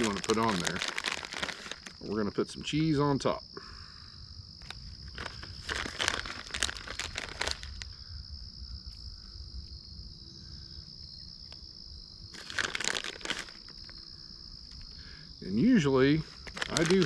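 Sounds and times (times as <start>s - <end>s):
plastic bag crinkling: 0.0s - 2.2s, 4.6s - 7.9s, 12.4s - 14.0s, 16.2s - 17.0s.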